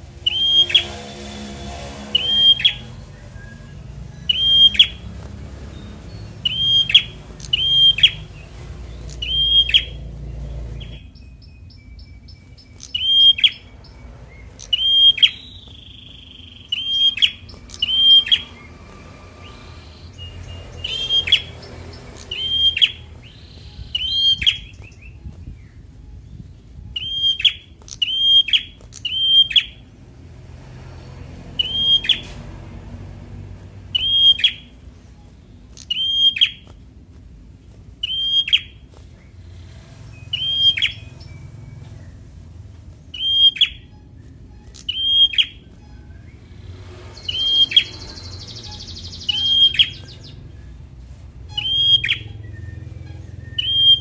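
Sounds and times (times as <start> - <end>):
bird calling short high notes: 51.4 - 54.0.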